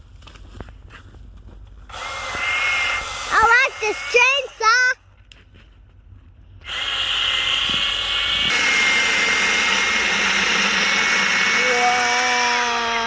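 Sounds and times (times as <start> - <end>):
electric chainsaw cutting wood: 1.9 - 4.8, 6.6 - 13.0.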